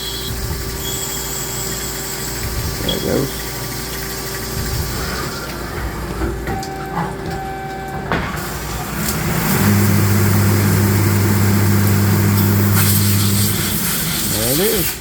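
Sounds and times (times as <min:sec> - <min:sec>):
machine hiss: 0:00.0 - 0:06.0, 0:08.4 - 0:15.0
lathe running: 0:08.4 - 0:15.0.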